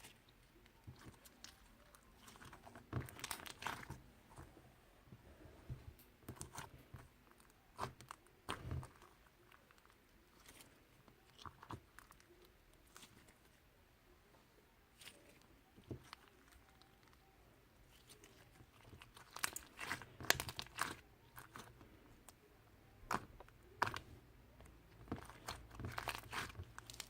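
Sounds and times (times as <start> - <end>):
crunching and crinkling: 0.0 - 4.6, 5.3 - 13.6, 14.9 - 27.0.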